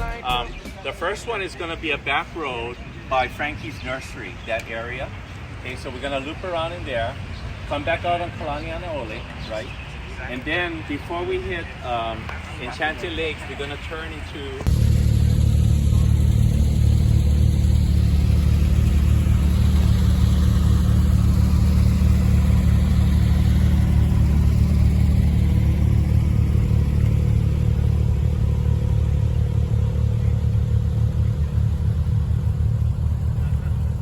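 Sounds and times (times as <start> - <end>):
road noise: 0.0 - 34.0
car engine droning: 5.1 - 34.0.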